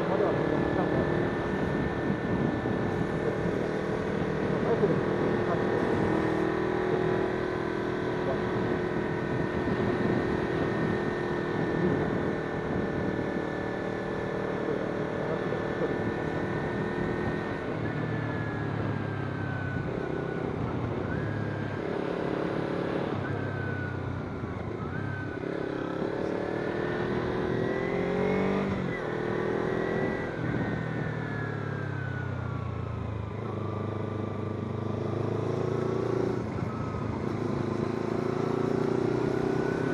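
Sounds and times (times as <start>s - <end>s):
motorcycle engine revving: 0.0s - 23.7s, 24.6s - 31.9s, 33.2s - 39.9s
wind noise: 1.8s - 3.0s.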